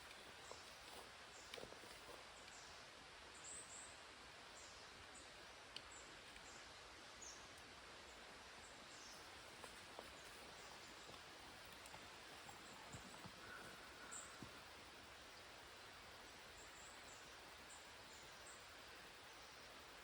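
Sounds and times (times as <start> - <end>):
soft ticks: 11.0 - 13.6.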